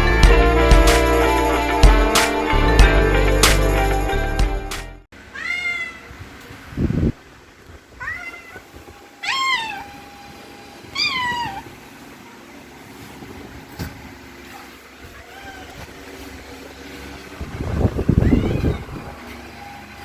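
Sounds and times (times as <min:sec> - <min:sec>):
cat meowing: 0:05.3 - 0:06.2, 0:08.0 - 0:10.3, 0:10.9 - 0:11.8, 0:15.1 - 0:15.9, 0:18.0 - 0:19.8.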